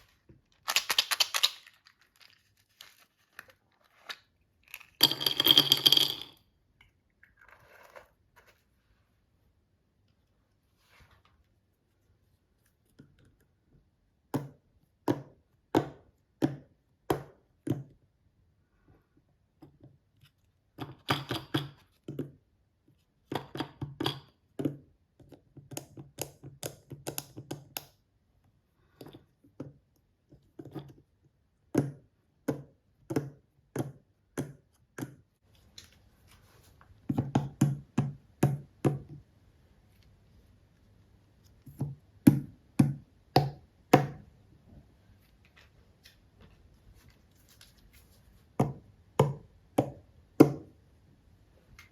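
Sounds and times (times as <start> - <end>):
plastic toy pieces tapping: 0.6 - 2.3.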